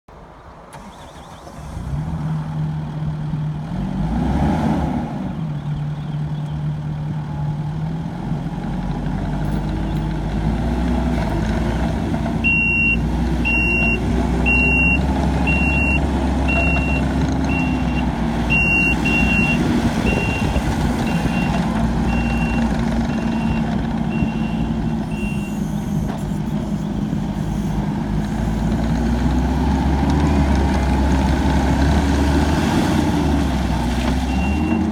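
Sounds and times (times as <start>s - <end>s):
diesel engine running: 0.7s - 34.9s
reverse alarm beeping: 12.4s - 26.1s, 34.3s - 34.9s.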